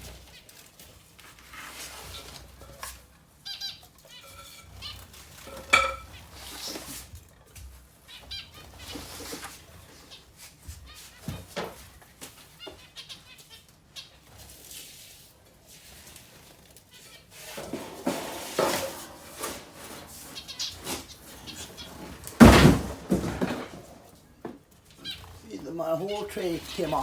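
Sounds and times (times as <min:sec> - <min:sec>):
cage tray clattering and scraping: 0:00.0 - 0:10.2, 0:14.4 - 0:27.0
finches calling: 0:20.1 - 0:22.2, 0:24.9 - 0:27.0.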